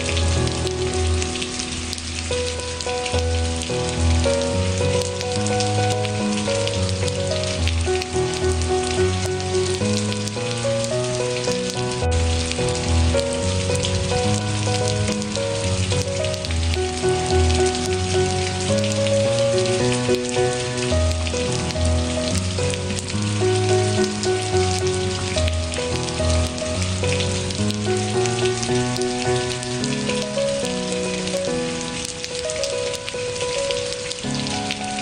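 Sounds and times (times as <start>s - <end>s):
rain with dripping drops: 0.0s - 35.0s
slow instrumental relaxation music: 0.0s - 35.0s.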